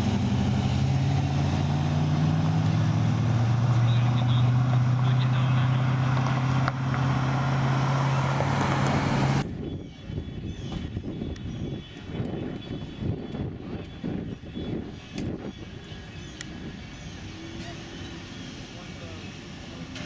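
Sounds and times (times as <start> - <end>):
car engine driving past: 0.0 - 9.4.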